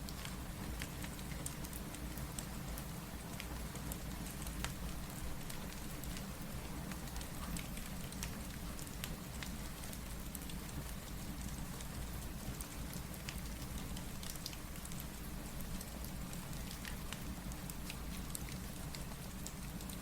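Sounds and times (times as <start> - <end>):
steady rain hissing: 0.0 - 20.0
wood fire crackling and popping: 0.1 - 6.3.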